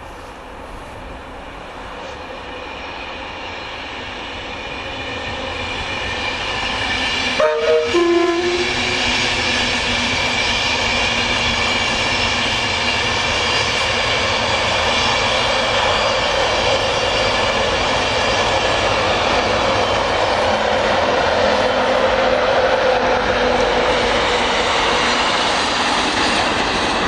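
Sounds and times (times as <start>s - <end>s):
train wheels rushing on track: 0.0s - 27.0s
two-tone train horn: 7.4s - 9.2s.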